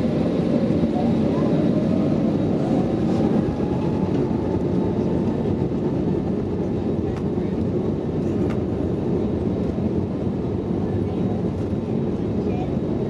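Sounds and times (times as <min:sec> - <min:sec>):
aircraft cabin engine roar: 0:00.0 - 0:13.0.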